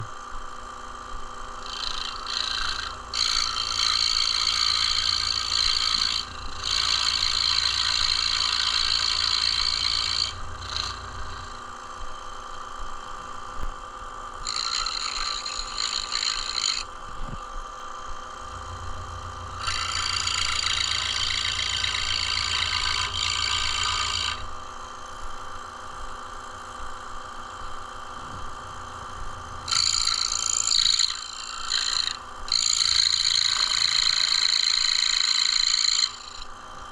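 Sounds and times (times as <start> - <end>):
scroll saw cutting wood: 1.0 - 11.9, 14.4 - 17.4, 18.3 - 24.7, 28.2 - 36.6.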